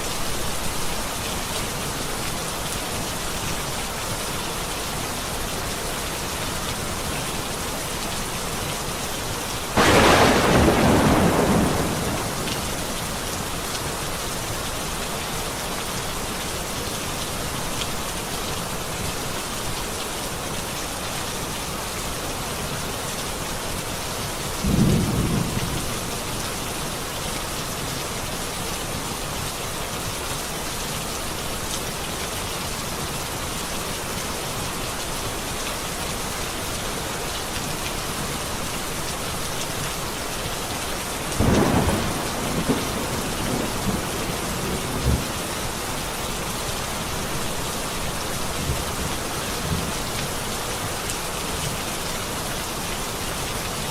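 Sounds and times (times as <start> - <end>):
steady rain: 0.0 - 53.9
thunder rumbling: 9.8 - 13.4, 41.4 - 45.4.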